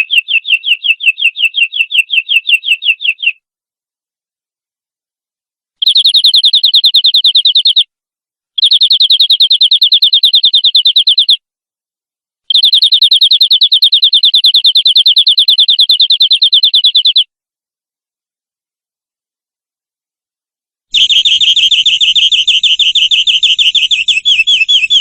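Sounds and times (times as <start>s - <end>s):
canary trilling: 0.0s - 3.4s, 12.5s - 17.2s, 21.0s - 25.0s.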